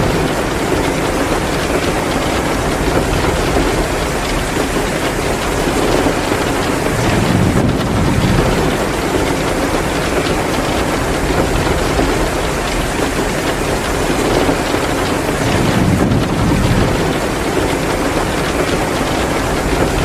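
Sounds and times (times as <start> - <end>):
heavy rain pouring: 0.0 - 20.0
wood fire crackling: 0.0 - 20.0
low rumble: 6.8 - 9.9.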